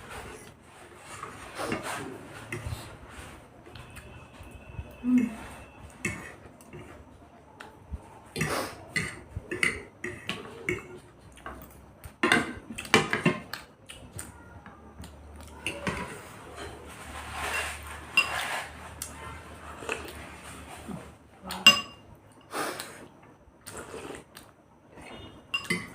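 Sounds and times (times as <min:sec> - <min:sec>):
cutlery clinking against bowls: 0:08.4 - 0:13.6, 0:15.6 - 0:19.1, 0:21.5 - 0:22.5, 0:25.2 - 0:25.9.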